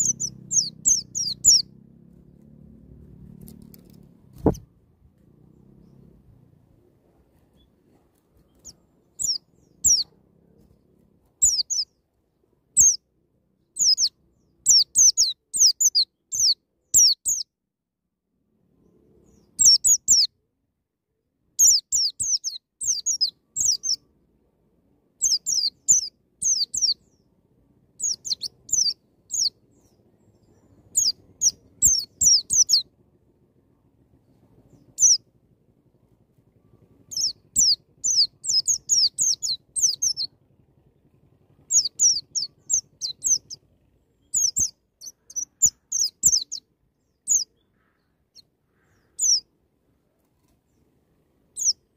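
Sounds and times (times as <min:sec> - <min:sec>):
white-eye bird singing: 0:00.0 - 0:01.9, 0:08.4 - 0:10.7, 0:11.4 - 0:12.0, 0:12.8 - 0:17.5, 0:18.8 - 0:20.3, 0:21.6 - 0:24.1, 0:25.2 - 0:32.9, 0:34.6 - 0:35.3, 0:36.6 - 0:40.4, 0:41.0 - 0:49.5, 0:51.5 - 0:51.9.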